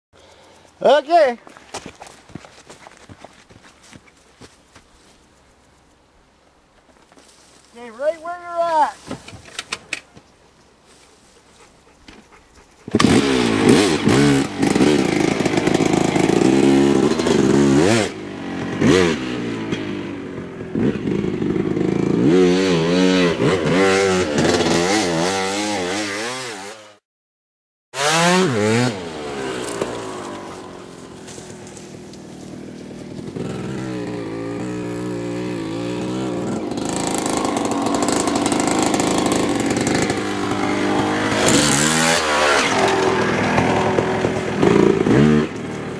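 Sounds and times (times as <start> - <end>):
motocross bike engine revving: 12.8 - 27.0, 28.0 - 45.9.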